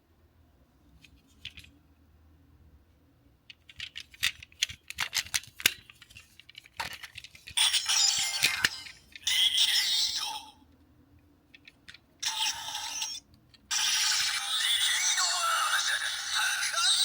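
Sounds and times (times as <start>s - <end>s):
sharp plastic clicks and rattles: 3.5s - 7.6s.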